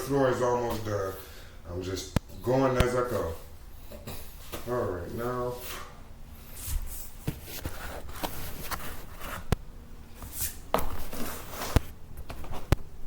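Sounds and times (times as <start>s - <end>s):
shuffling and rustling: 2.8s - 12.8s.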